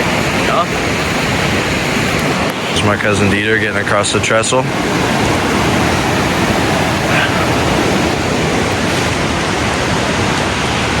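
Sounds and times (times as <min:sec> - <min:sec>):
fast-flowing water rushing: 0:00.0 - 0:11.0.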